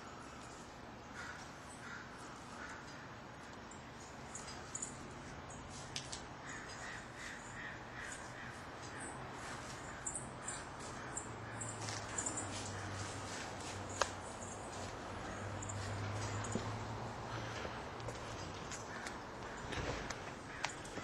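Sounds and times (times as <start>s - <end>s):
steady low hum: 0.0s - 21.0s
bird calling: 6.4s - 21.0s.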